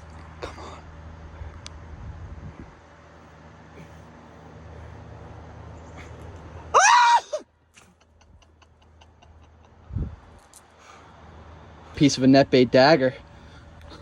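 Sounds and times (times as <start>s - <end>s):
steady low rush: 0.0s - 6.8s, 8.2s - 14.0s
man whooping: 6.8s - 7.5s.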